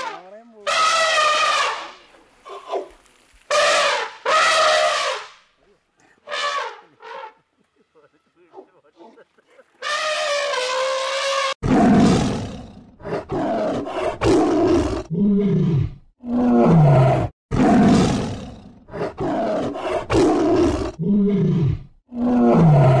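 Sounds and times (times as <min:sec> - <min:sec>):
elephant trumpeting: 0:00.0 - 0:02.9, 0:03.5 - 0:05.4, 0:06.2 - 0:07.4, 0:09.8 - 0:12.2
tiger roaring and growling: 0:09.8 - 0:23.0.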